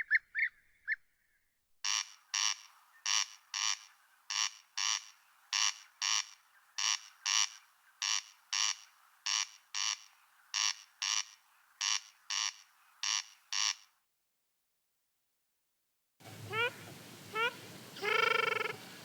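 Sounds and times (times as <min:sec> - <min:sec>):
animal calling in rasping double notes: 0:16.2 - 0:19.0.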